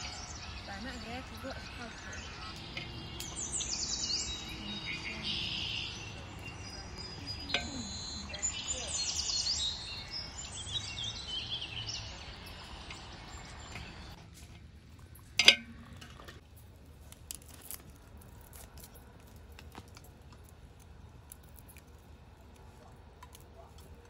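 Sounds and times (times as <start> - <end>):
birds chirping: 0.0 - 14.3.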